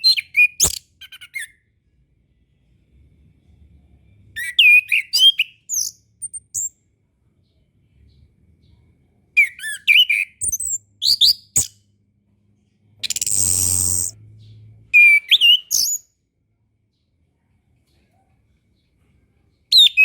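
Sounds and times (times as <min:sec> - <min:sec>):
thrush singing high whistles: 0:13.1 - 0:14.2.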